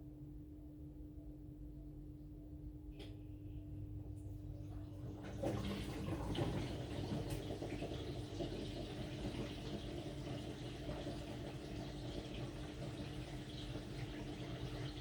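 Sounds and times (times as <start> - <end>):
washing machine hum: 0.0 - 15.0
water sloshing in drum: 4.6 - 11.7.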